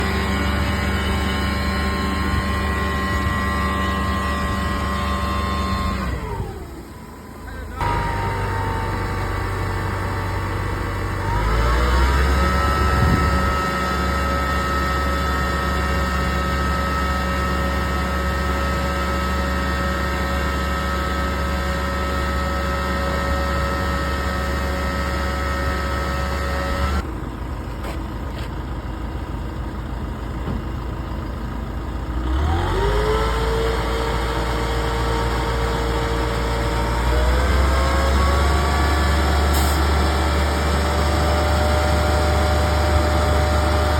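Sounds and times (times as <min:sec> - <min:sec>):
truck engine running: 0:00.0 - 0:43.9.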